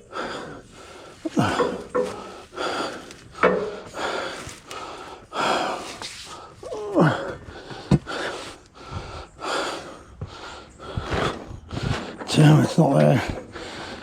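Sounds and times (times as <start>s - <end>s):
man breathing hard and gasping: 0.0s - 12.3s, 13.1s - 14.0s
man grunting: 6.7s - 7.4s.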